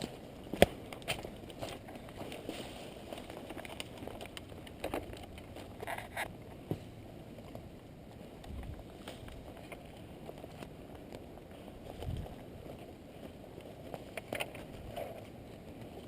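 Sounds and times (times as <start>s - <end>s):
rustling and crackling through brush: 0.0s - 16.0s
wind rumble on microphone: 8.2s - 13.6s.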